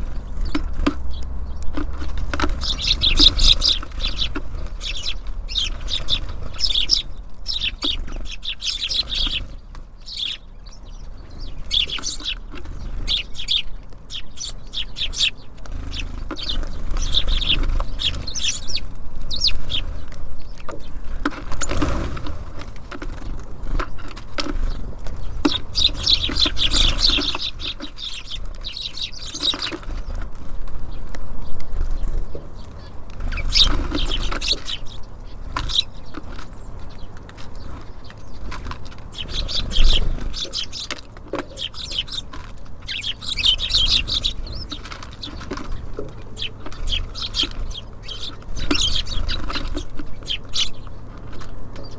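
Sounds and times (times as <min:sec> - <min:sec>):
steady low rumble: 0:00.0 - 0:21.1
small songbirds chirping: 0:00.0 - 0:51.9
wing flutters: 0:01.7 - 0:10.4, 0:11.1 - 0:20.2.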